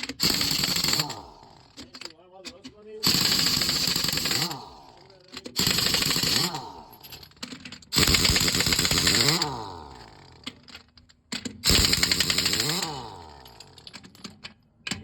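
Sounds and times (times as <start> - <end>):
pneumatic impact wrench hammering: 0.0 - 15.0.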